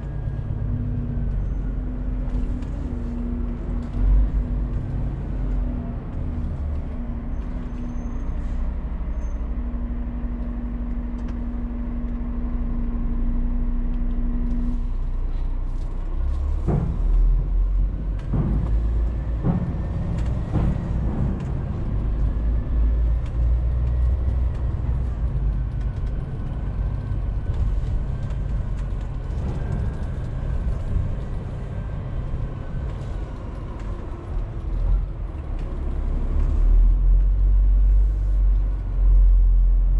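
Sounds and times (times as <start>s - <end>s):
truck engine rumble: 0.0s - 39.9s
sharp knocks: 18.2s - 22.3s.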